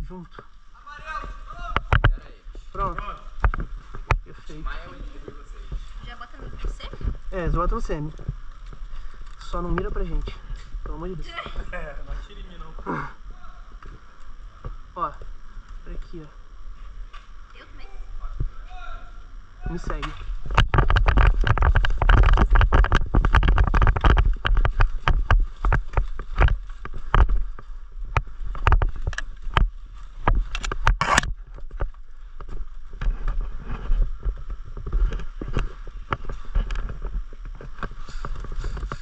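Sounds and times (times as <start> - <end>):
low microphone rumble: 0.0 - 39.0
gear jostling clicks and knocks: 20.0 - 39.0.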